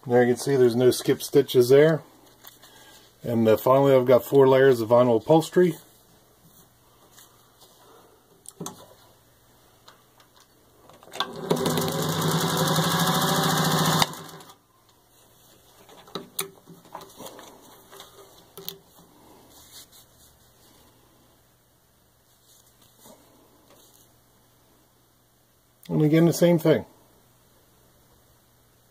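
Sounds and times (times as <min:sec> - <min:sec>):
sewing machine stitching: 0:11.2 - 0:14.6.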